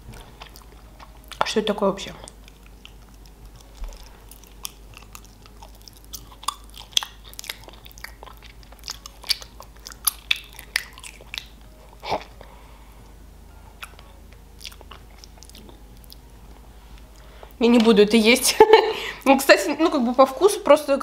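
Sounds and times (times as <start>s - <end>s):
wet chewing clicks and smacks: 0.2s - 12.4s, 13.8s - 16.3s.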